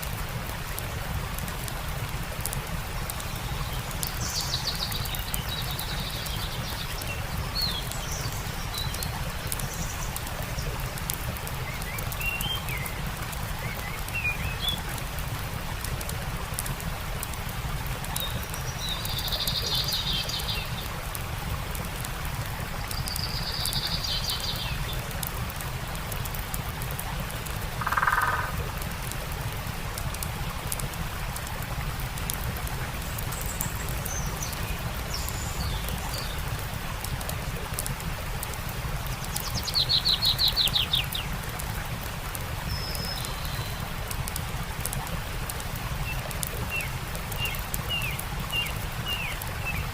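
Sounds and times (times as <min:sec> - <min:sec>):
campfire crackling: 0:00.0 - 0:49.9
stream rushing: 0:00.0 - 0:49.9
birds chirping: 0:27.8 - 0:28.6.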